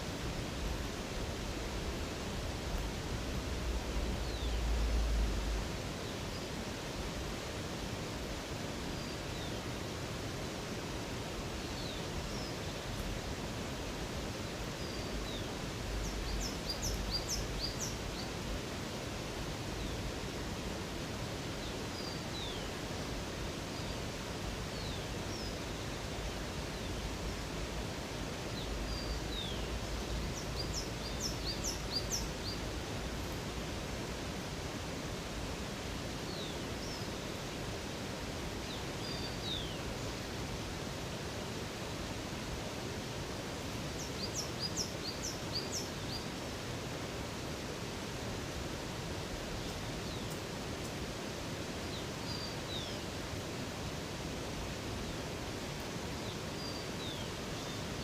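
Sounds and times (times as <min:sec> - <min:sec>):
rushing water: 0:00.0 - 0:58.0
birds singing: 0:14.8 - 0:18.4, 0:28.5 - 0:33.4, 0:44.0 - 0:46.3.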